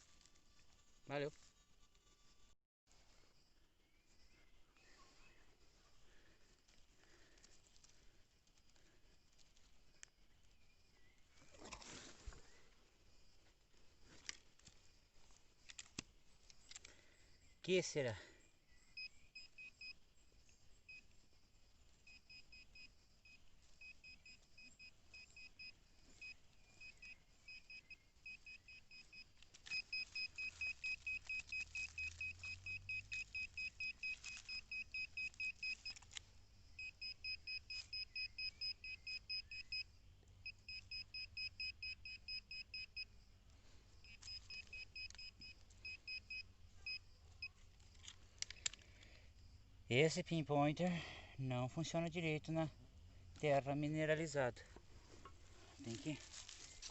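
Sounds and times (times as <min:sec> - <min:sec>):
scraping in soil: 0:11.4 - 0:12.5, 0:55.0 - 0:56.9
pinpointer beeping in rapid pulses: 0:22.1 - 0:36.0, 0:36.8 - 0:43.1, 0:44.0 - 0:47.5.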